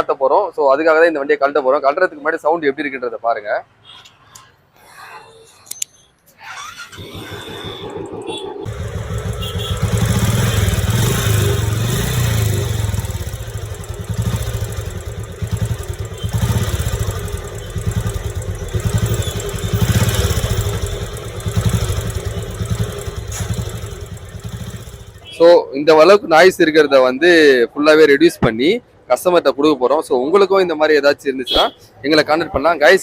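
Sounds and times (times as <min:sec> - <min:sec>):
motorcycle engine revving: 0:06.8 - 0:25.4.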